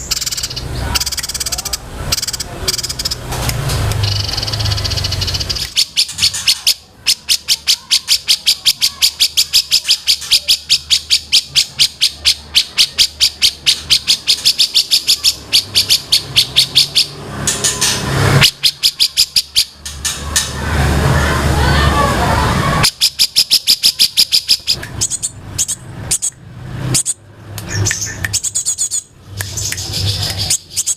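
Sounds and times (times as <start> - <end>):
songbird sharp high chirps: 4.0 - 17.8, 22.8 - 30.9.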